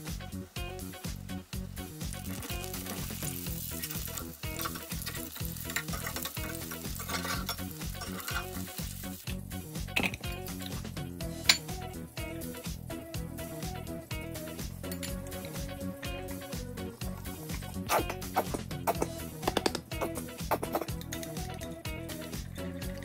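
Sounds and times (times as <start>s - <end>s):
patties sizzling in oil: 0.0s - 13.7s
background music with beat: 0.0s - 23.0s.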